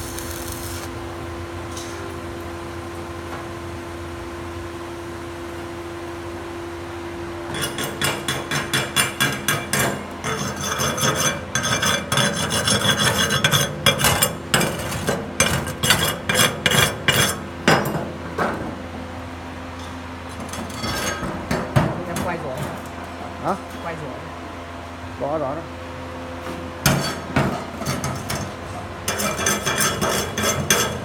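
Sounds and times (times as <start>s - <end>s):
electrical hum: 0.0s - 8.0s, 9.8s - 31.0s
hand tool scraping metal: 7.5s - 17.4s, 20.4s - 21.3s, 26.8s - 31.0s.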